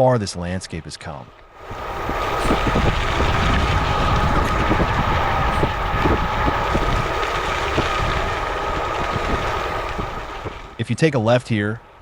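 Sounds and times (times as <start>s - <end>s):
tyre rumble: 1.6s - 10.8s
wind rushing over microphone: 1.6s - 11.9s
steady high whine: 1.6s - 12.0s.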